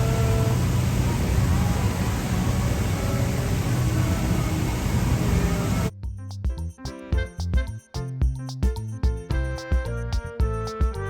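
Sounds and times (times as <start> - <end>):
rain hissing: 0.0 - 5.9
traffic rumble: 0.0 - 5.9.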